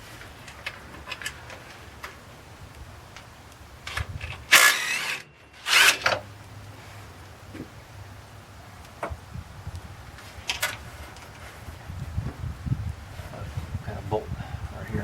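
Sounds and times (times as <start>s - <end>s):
power tool spinning bolt: 3.9s - 6.2s.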